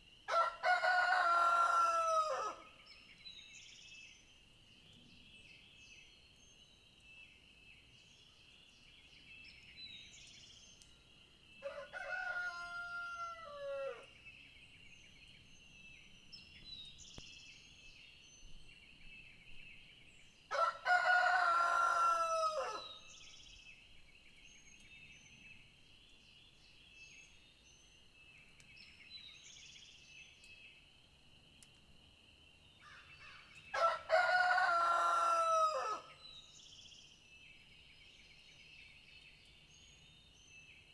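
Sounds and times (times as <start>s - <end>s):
rooster crowing: 0.3s - 2.7s, 11.6s - 14.1s, 20.5s - 22.9s, 33.7s - 36.1s.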